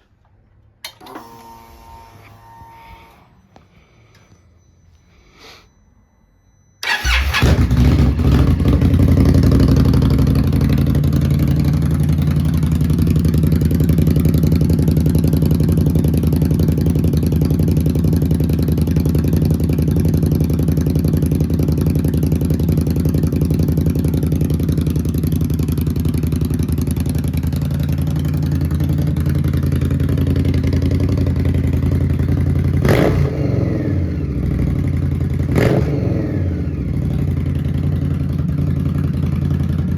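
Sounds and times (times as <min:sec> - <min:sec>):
motorcycle engine idling: 0:06.8 - 0:39.9.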